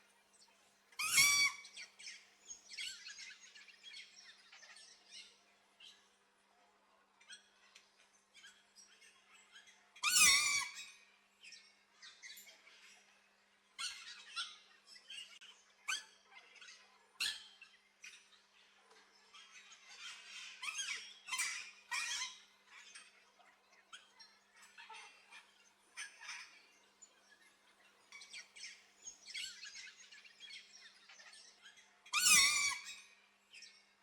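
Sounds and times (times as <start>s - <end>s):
loud harsh bird squawk: 1.0s - 1.7s, 32.2s - 33.0s
birds chirping and squawking: 1.0s - 1.8s, 24.0s - 27.1s, 28.1s - 33.2s.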